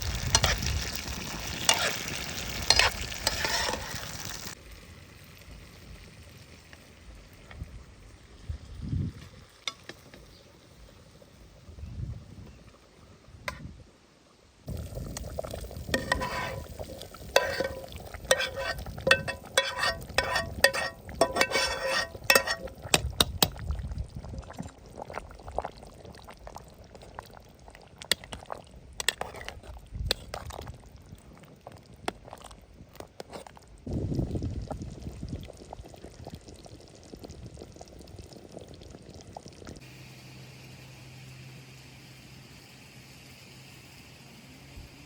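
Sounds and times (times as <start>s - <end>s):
liquid pouring and splashing: 0.0s - 4.6s, 14.7s - 32.6s.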